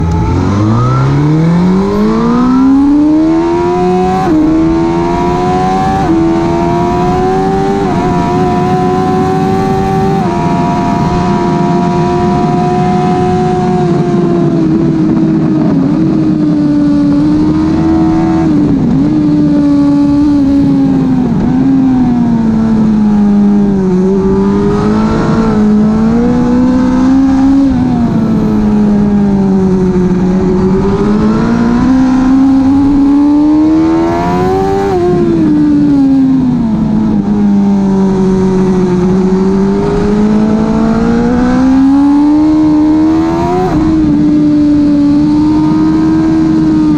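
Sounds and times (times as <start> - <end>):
motorcycle engine revving high: 0.0 - 46.9.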